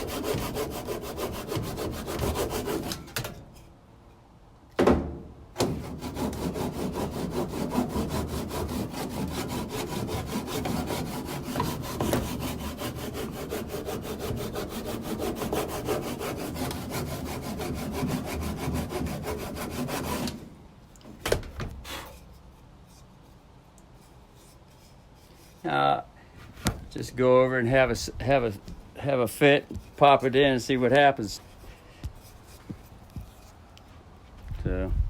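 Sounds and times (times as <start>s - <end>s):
hand saw cutting wood: 0.0s - 3.3s, 5.6s - 20.4s.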